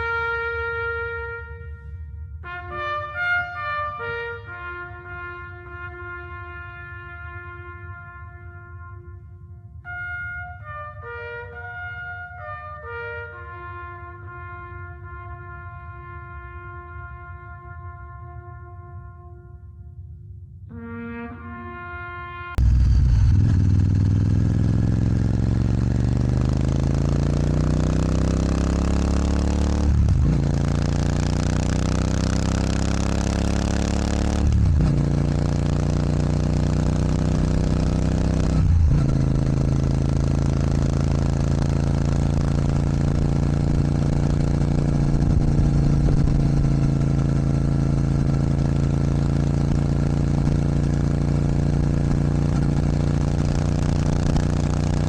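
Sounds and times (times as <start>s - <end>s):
motorcycle engine accelerating: 22.6s - 55.0s.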